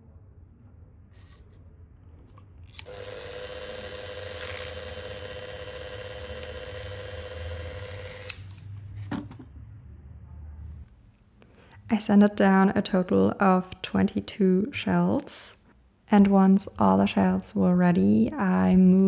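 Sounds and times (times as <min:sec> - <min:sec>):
rotary tool high whine: 0:02.8 - 0:08.6.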